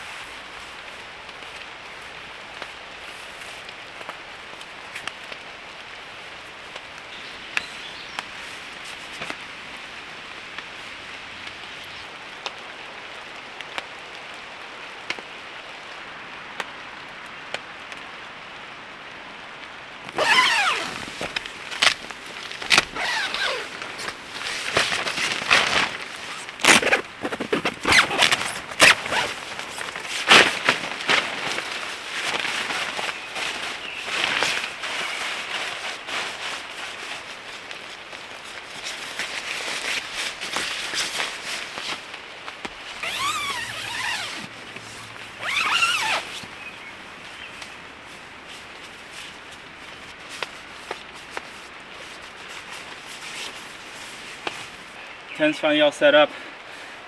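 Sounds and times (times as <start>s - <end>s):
tarp fabric rustling: 20.0s - 55.0s.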